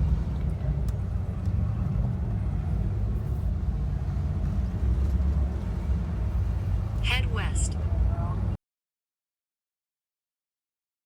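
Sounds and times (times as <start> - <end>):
car engine low rumble: 0.0 - 8.6.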